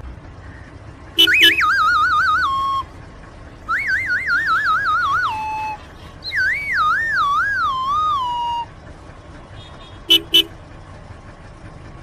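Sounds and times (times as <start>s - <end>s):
comic descending whistle: 3.7s - 8.7s.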